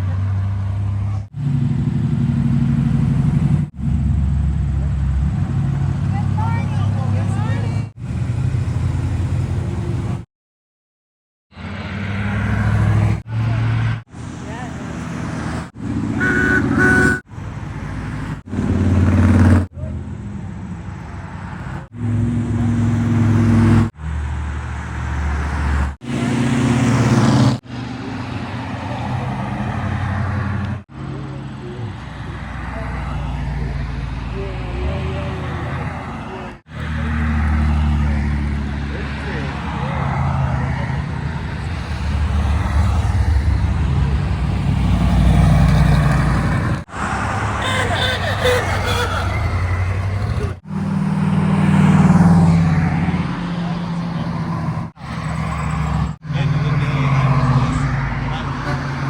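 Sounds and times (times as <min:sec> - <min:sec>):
car engine rumbling through exhaust: 0:00.0 - 0:10.2, 0:37.6 - 0:58.7
car engines driving past: 0:11.6 - 0:59.0.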